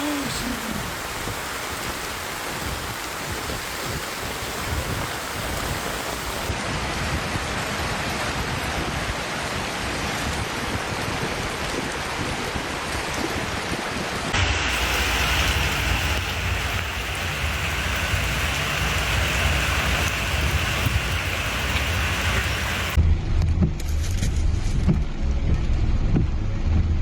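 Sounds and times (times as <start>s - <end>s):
heavy rain pouring: 0.0s - 23.0s
wind rumble on microphone: 0.6s - 14.4s, 15.2s - 27.0s.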